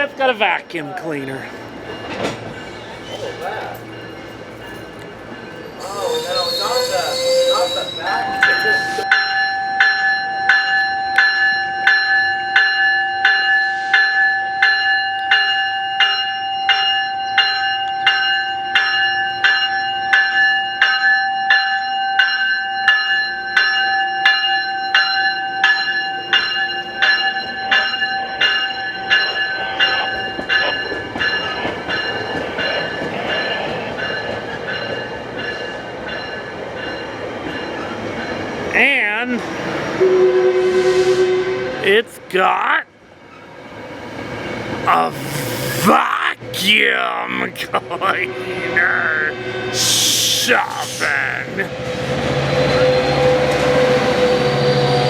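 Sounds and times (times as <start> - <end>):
train rumbling: 0.0 - 9.8, 28.4 - 55.0
railroad crossing bell ringing: 0.0 - 43.5, 44.9 - 55.0.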